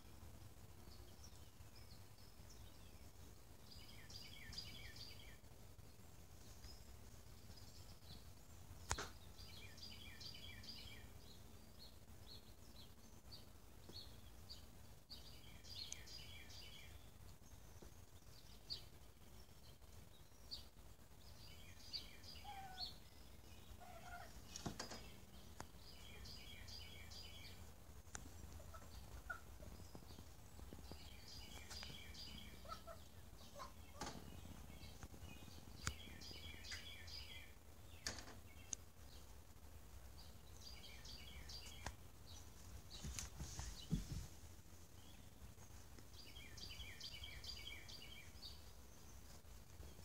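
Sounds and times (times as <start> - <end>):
bird chirps: 21.3 - 27.7, 28.6 - 39.3, 40.2 - 43.2, 46.2 - 49.2.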